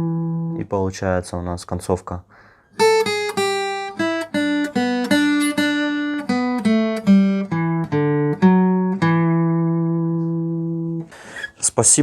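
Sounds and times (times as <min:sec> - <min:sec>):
acoustic guitar plucked notes: 0:00.0 - 0:00.7, 0:02.8 - 0:11.1.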